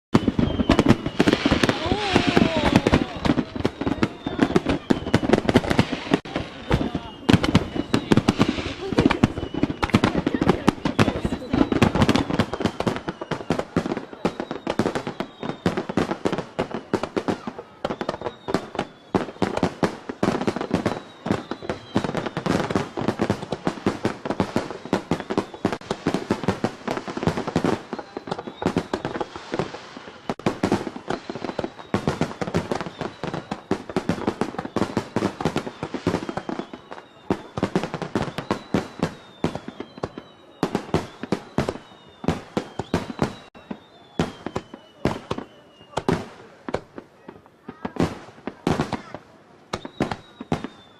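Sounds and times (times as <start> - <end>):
firework bangs and crackling: 0.1 - 50.9
firework whistles sliding down: 0.2 - 46.3, 49.7 - 50.9.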